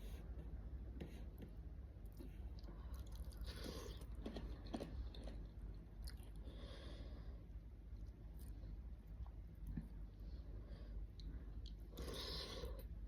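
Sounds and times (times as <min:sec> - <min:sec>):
faint low hum: 0:00.0 - 0:13.0
chewing crunchy food: 0:02.1 - 0:06.5.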